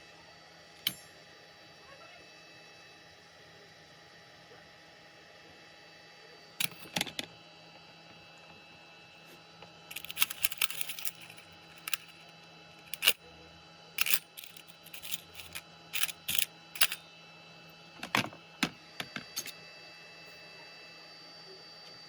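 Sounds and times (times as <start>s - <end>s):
faint steady hum: 0.0s - 22.0s
tools and small parts clicking: 6.6s - 7.3s, 9.9s - 12.2s, 12.8s - 13.2s, 14.0s - 17.0s, 18.0s - 18.3s, 19.0s - 19.6s.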